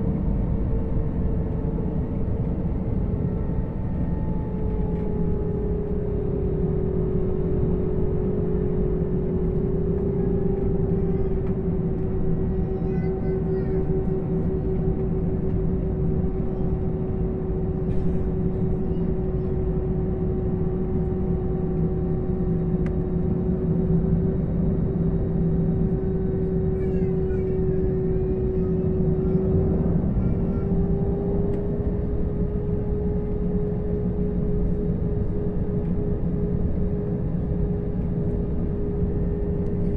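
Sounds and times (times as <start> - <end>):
engine whine: 0.0 - 39.9
jet engines idling rumble: 0.0 - 39.9.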